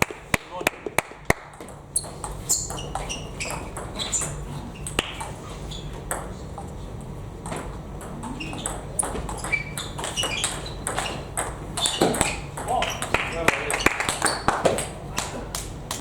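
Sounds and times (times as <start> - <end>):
steady low hum: 0.0 - 16.0
table tennis balls clicking: 0.0 - 16.0
short high squeaks: 2.0 - 5.0, 8.2 - 14.5.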